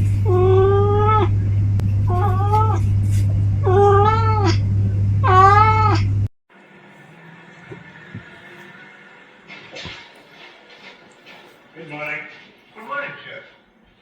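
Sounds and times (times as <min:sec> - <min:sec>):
low hum: 0:00.0 - 0:14.0
cat meowing: 0:00.2 - 0:01.4, 0:02.1 - 0:02.9, 0:03.6 - 0:04.6, 0:05.2 - 0:06.1.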